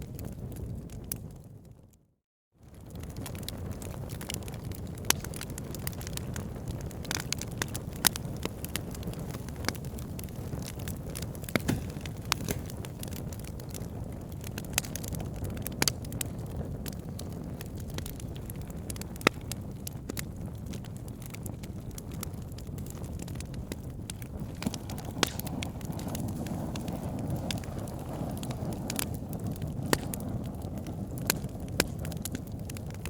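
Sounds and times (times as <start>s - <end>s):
wood fire crackling and popping: 0.0s - 1.9s, 2.6s - 33.0s.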